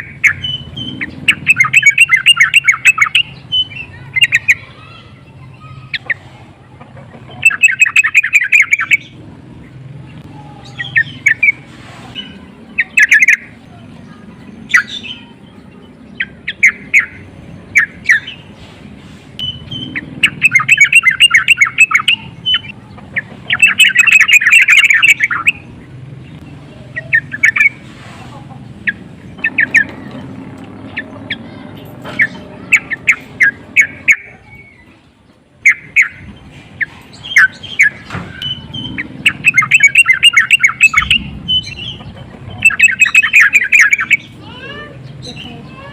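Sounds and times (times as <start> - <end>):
bird chattering call: 0.0 - 9.2, 10.3 - 18.6, 19.4 - 35.0, 35.6 - 45.9.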